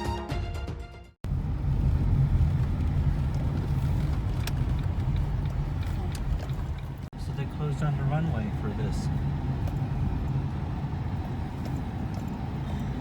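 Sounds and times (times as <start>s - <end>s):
background music: 0.0s - 1.2s
vehicle interior rumble: 1.2s - 13.0s.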